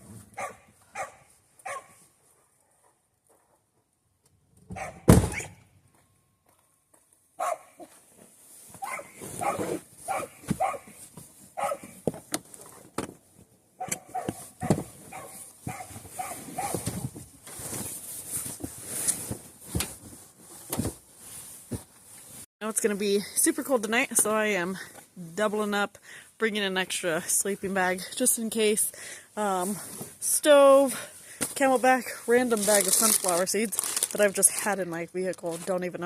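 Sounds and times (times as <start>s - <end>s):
dog barking: 0.4s - 2.0s, 4.8s - 5.5s, 7.4s - 7.9s, 8.8s - 10.9s, 11.6s - 12.0s, 13.8s - 16.8s
loud thump: 5.0s - 5.5s.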